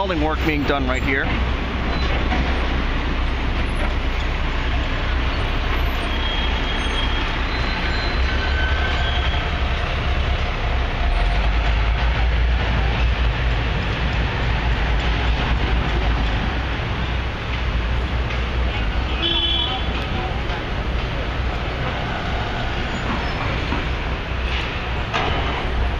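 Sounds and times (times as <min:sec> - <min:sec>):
construction machinery: 0:00.0 - 0:25.9
traffic rumble: 0:00.0 - 0:25.9
faint high squeals: 0:05.4 - 0:09.5.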